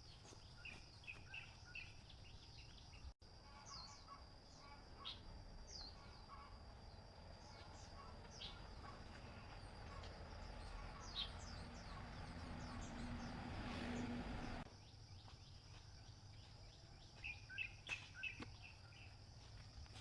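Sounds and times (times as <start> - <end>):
birds chirping: 0.0 - 15.3.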